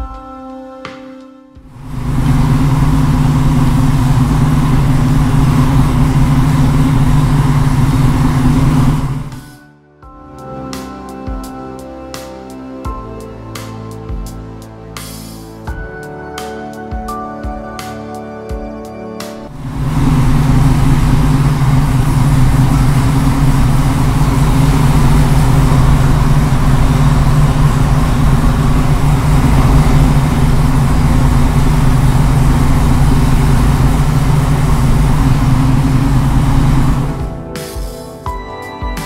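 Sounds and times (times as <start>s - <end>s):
car engine idling loud: 1.7s - 9.6s, 19.5s - 37.5s.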